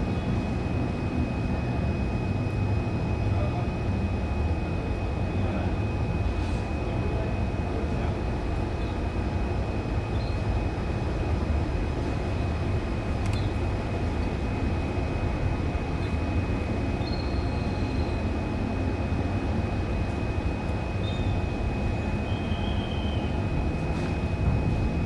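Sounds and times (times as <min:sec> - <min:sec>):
faint bird chirps: 0:17.0 - 0:18.2, 0:22.3 - 0:23.2
steady low rumble: 0:23.4 - 0:25.0.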